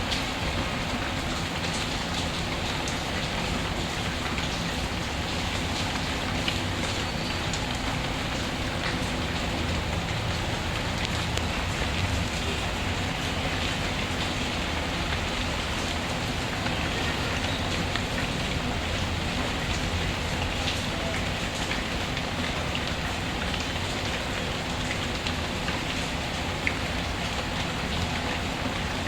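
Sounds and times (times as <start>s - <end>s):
steady rainfall: 0.0s - 29.0s.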